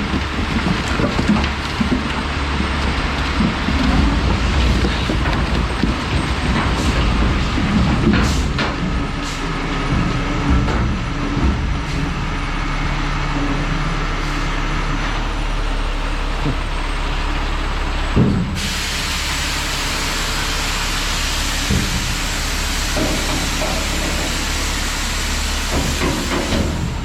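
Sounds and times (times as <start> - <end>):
knocks and clanks: 0.0 - 9.2, 9.8 - 12.2
truck engine running: 0.0 - 27.0.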